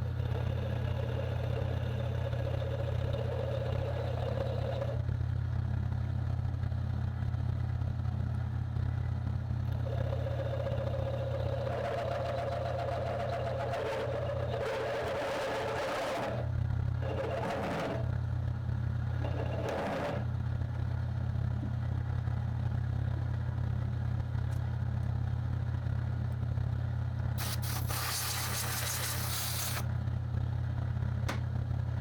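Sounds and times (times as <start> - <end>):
machine tool motor humming: 9.7 - 18.2, 19.1 - 20.4, 27.4 - 29.9
hissing rasping noise: 27.4 - 29.8.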